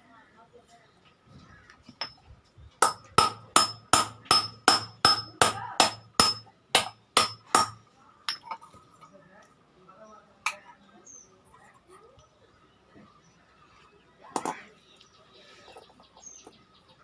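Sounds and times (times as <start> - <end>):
hammer striking iron: 2.8 - 8.5.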